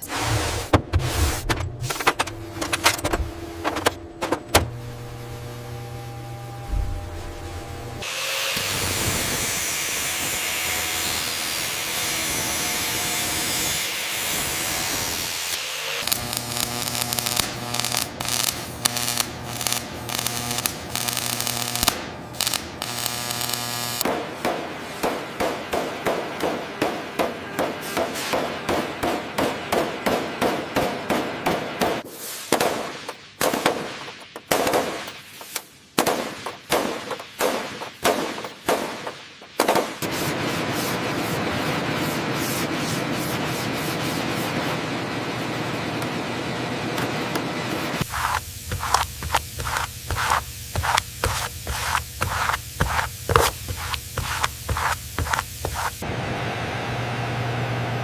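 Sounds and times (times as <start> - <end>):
low hum: 1.0 - 8.0
steady rushing hiss: 48.0 - 56.0.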